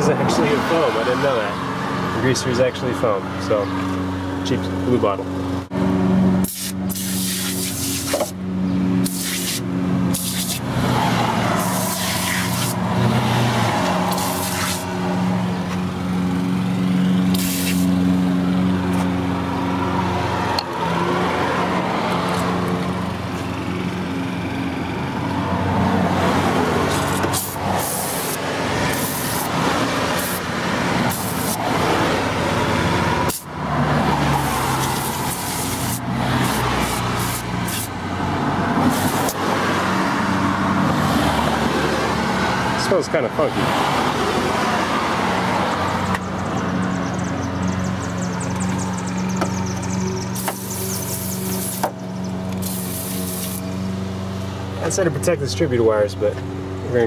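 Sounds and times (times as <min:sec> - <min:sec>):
aerosol can spraying: 0:06.4 - 0:08.4, 0:09.0 - 0:10.7, 0:11.6 - 0:12.8, 0:13.9 - 0:14.9, 0:17.3 - 0:18.0, 0:26.9 - 0:31.8, 0:33.2 - 0:33.5, 0:34.4 - 0:37.9, 0:38.8 - 0:39.4, 0:50.4 - 0:52.0, 0:52.6 - 0:53.6
car engine idling: 0:45.7 - 0:55.4.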